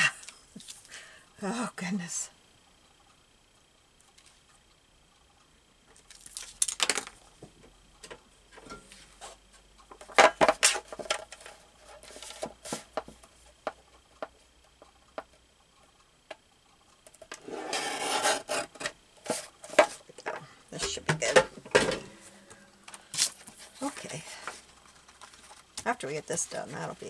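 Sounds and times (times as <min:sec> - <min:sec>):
paper rustling and scraping: 0:17.4 - 0:20.0.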